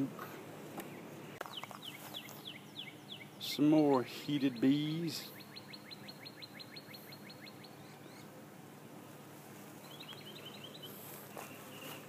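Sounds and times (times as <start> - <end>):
honeybees humming: 0.0 - 12.0
small bird chirping: 0.8 - 8.3, 9.8 - 12.0.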